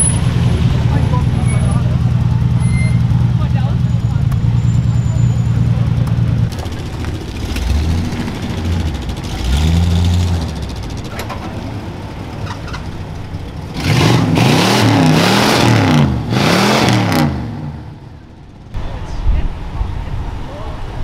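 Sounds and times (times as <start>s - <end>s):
low engine rumble: 0.0s - 14.4s, 17.3s - 21.0s
car engine revving: 0.0s - 18.8s.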